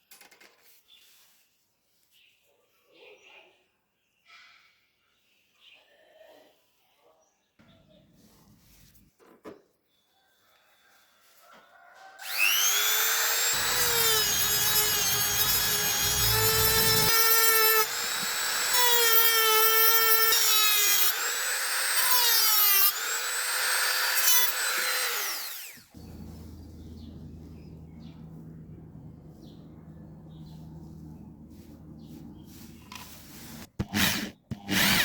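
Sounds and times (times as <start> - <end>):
small electric drill whining: 12.2 - 26.0, 33.8 - 35.0.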